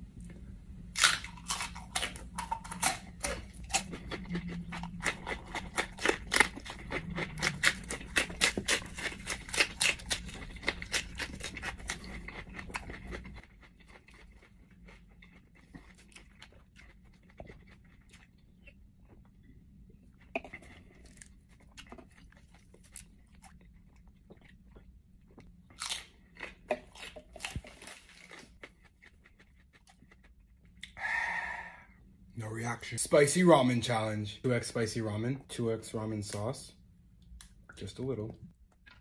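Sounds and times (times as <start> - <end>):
person chewing food crunchily: 0.8 - 31.1.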